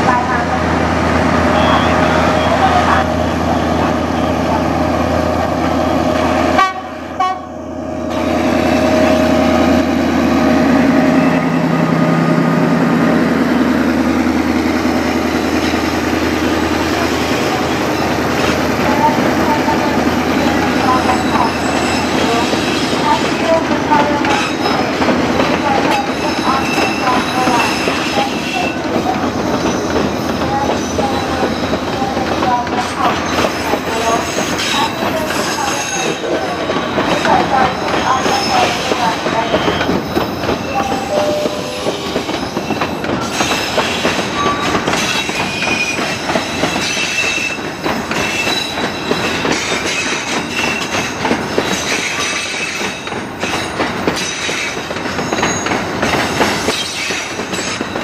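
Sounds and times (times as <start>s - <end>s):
train rattling on rails: 0.0s - 58.0s
high wheel squeals: 21.0s - 22.9s.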